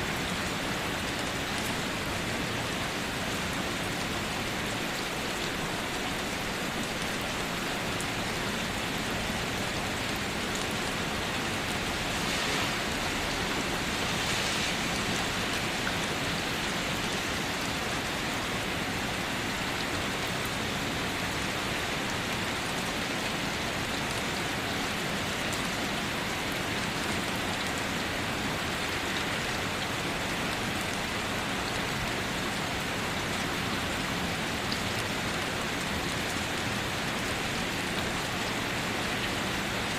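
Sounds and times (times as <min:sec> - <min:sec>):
rain hissing: 0:00.0 - 0:21.8
waterfall rushing water: 0:00.0 - 0:39.9.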